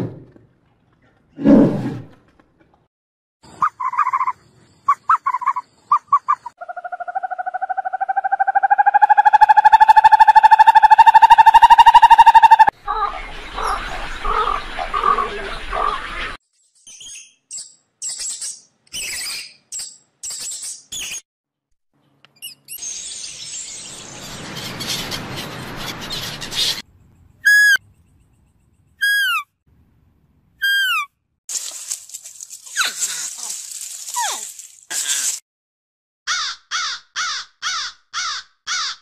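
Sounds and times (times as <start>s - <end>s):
gulls calling: 3.6s - 16.4s
short high bird chirps: 27.4s - 27.8s, 28.9s - 29.4s, 30.6s - 31.1s.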